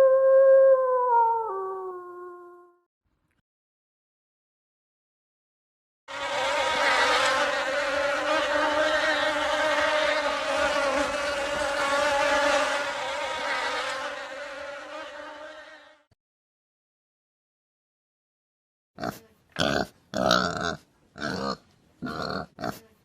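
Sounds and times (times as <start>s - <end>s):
flying insect buzzing: 6.1s - 16.1s.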